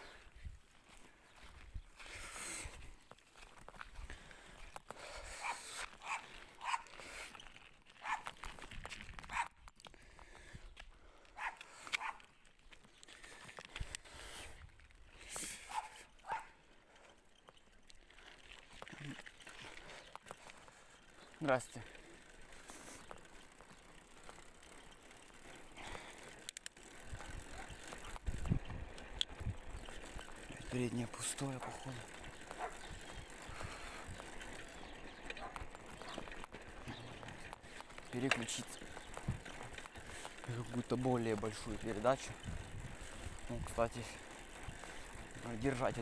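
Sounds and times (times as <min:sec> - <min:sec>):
bicycle tyre and drivetrain noise: 0:00.0 - 0:46.0
dog barking: 0:05.4 - 0:06.9, 0:08.0 - 0:08.3, 0:09.3 - 0:09.5, 0:11.4 - 0:12.2, 0:15.7 - 0:16.5, 0:32.6 - 0:32.8, 0:35.4 - 0:36.2.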